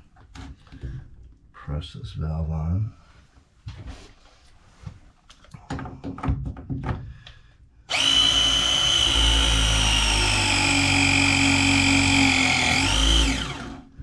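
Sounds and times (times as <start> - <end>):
press tool motor whine: 7.9 - 13.9.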